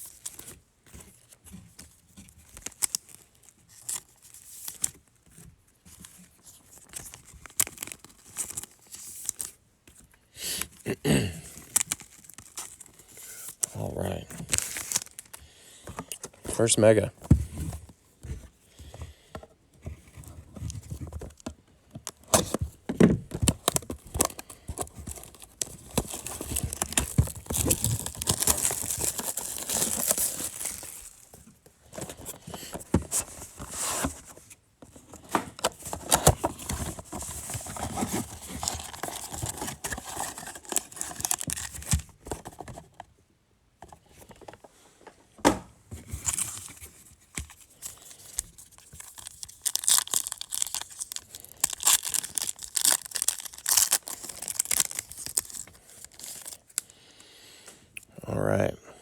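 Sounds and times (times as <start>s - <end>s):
plastic wrapping crinkling and tearing: 0.0s - 9.6s, 10.6s - 17.1s, 22.0s - 34.2s, 35.1s - 42.6s, 46.2s - 56.9s
cardboard clicks and rustles: 0.0s - 10.8s, 11.4s - 43.2s, 43.8s - 56.9s.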